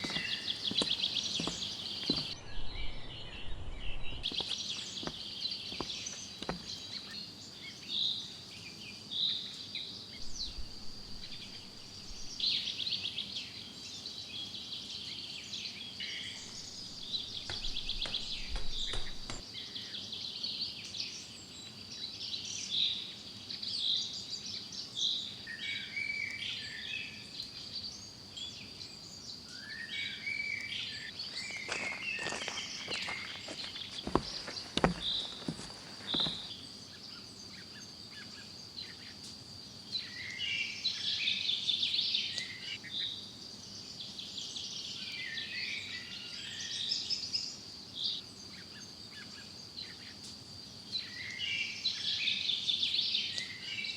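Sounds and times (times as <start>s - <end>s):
trilling insects: 0.0s - 2.4s, 4.0s - 20.1s, 27.5s - 53.9s
birds calling: 0.0s - 7.9s, 16.0s - 19.4s, 30.0s - 37.2s.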